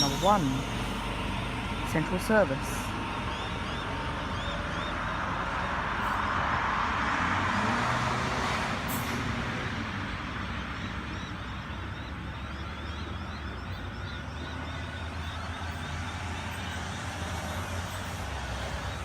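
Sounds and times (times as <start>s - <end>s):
steady low hum: 0.0s - 6.3s
electric train pulling out: 0.0s - 19.0s.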